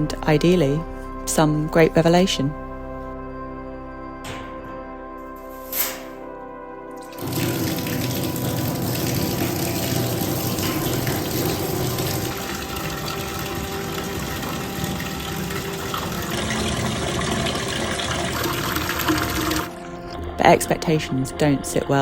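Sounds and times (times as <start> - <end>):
water running: 7.0 - 22.0.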